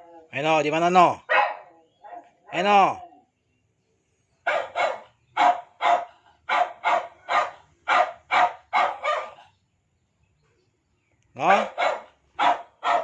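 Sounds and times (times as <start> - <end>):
dog barking: 1.3 - 2.6, 4.4 - 9.5, 11.5 - 13.0.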